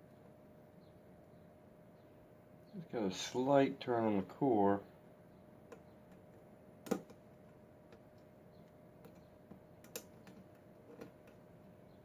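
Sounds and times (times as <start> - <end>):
lock-picking clicks: 9.0 - 11.4.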